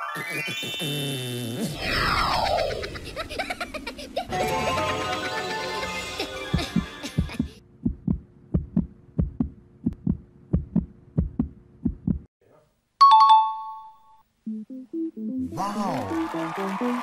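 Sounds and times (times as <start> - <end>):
heartbeat thumps: 6.6 - 12.3.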